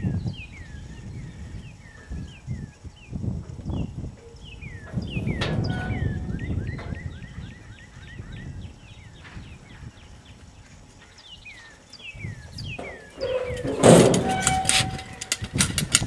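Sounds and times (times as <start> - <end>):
knocks and rustling from steel chute: 3.4 - 7.7, 11.8 - 16.0
songbird whistling: 3.8 - 10.4.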